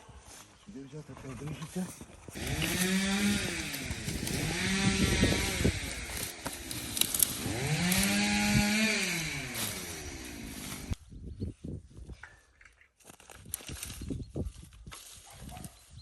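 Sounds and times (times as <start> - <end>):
chainsaw cutting wood: 2.4 - 11.0.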